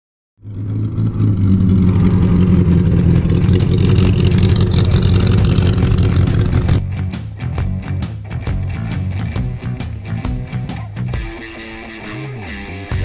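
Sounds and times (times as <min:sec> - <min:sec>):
car engine running: 0:00.4 - 0:06.8.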